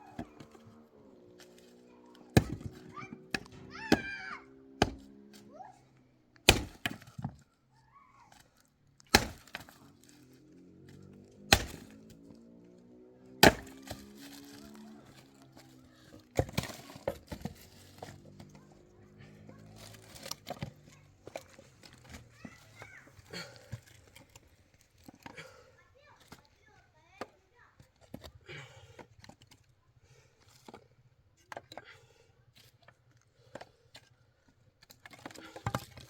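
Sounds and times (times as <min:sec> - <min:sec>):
wood being chopped: 0:00.0 - 0:00.8, 0:01.4 - 0:05.5, 0:06.4 - 0:07.5, 0:08.3 - 0:10.2, 0:10.9 - 0:12.4, 0:13.4 - 0:18.7, 0:19.4 - 0:25.5, 0:35.0 - 0:36.0.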